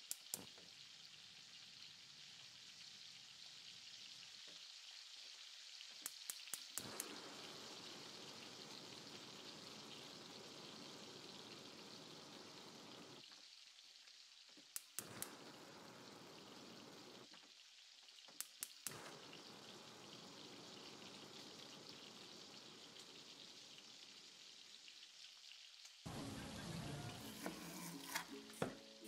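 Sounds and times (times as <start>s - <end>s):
sharp popping of frying food: 0.0s - 27.2s
food sizzling in a pan: 0.0s - 29.0s.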